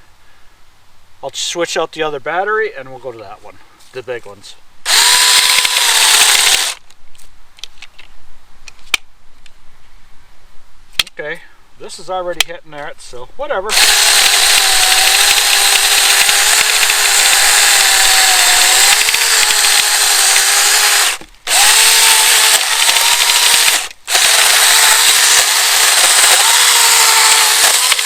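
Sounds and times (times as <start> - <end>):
electric chainsaw cutting log: 4.9 - 6.8, 13.7 - 28.0.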